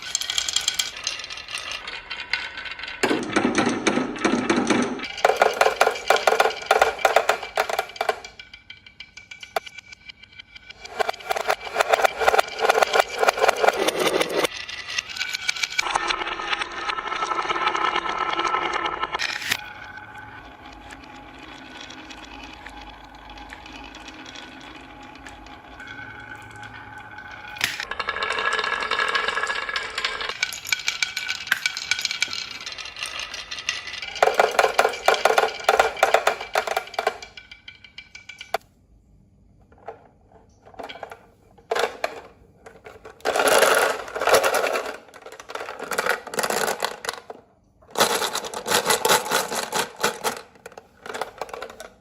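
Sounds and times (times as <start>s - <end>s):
rapid clicking and rattling: 0.0s - 16.0s, 27.6s - 38.6s.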